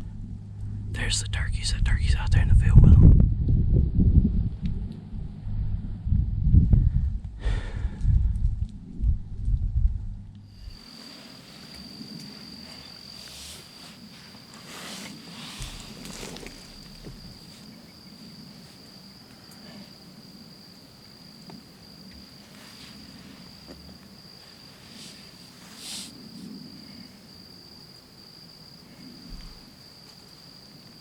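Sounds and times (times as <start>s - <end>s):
cricket trilling: 0.0s - 5.3s, 10.4s - 31.0s
faint rustling: 10.4s - 19.9s, 21.4s - 27.2s.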